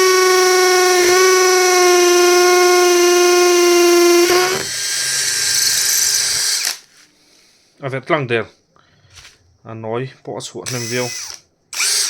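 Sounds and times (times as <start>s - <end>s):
impact drill drilling into brick: 0.0s - 6.8s, 10.7s - 12.0s.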